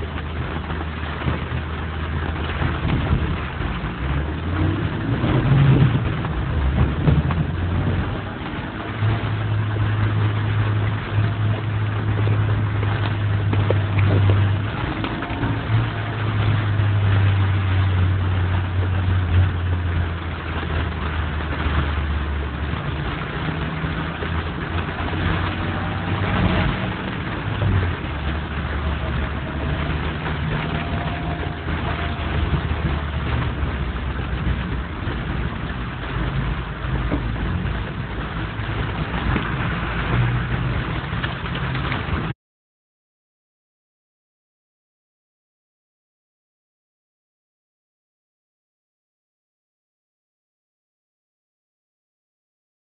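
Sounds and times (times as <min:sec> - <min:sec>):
traffic engine hum: 0:00.0 - 0:42.3
rain hissing on wet roads: 0:00.0 - 0:42.4.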